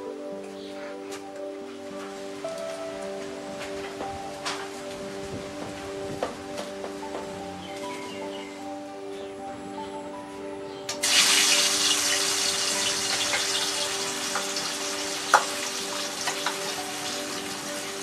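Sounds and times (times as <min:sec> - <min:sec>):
fish sizzling in hot oil: 0:11.0 - 0:18.0.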